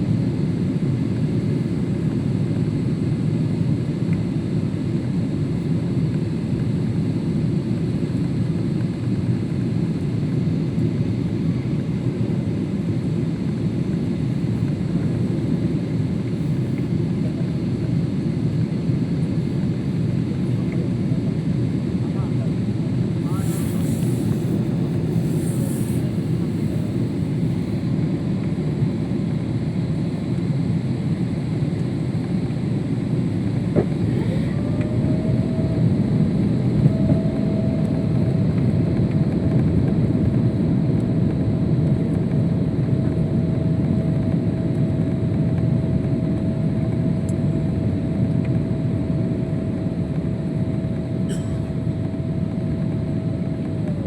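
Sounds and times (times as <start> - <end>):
airliner cabin engine rumble: 0.0 - 54.0
thin whine: 23.2 - 29.1, 33.3 - 40.4, 50.8 - 54.0.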